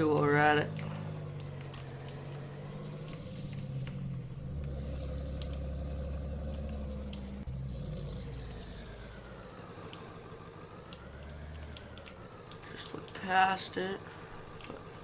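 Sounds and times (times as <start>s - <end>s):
truck engine and road drone: 0.0s - 15.0s
sharp clicks: 0.6s - 5.8s, 6.4s - 7.5s, 10.8s - 13.3s.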